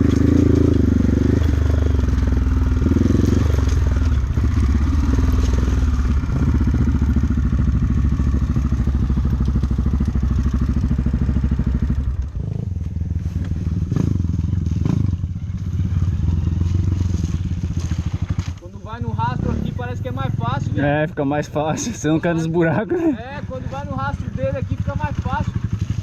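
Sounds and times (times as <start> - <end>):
motorcycle engine running: 0.0 - 26.0
motorcycle knocking over rough ground: 7.9 - 18.6.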